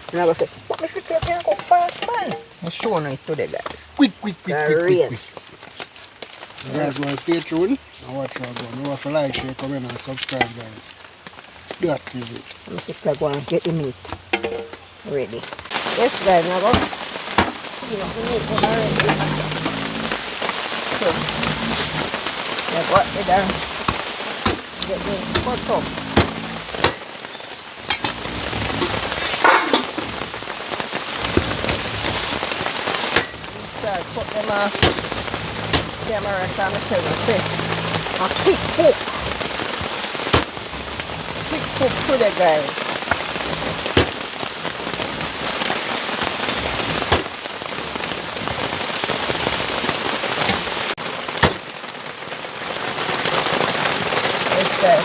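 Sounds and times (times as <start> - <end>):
rain falling: 0.0 - 55.0
sharp taps and knocks: 23.0 - 27.1.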